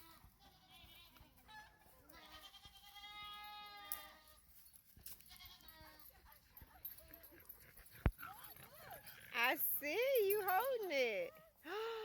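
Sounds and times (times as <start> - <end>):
goats bleating: 2.1 - 4.3.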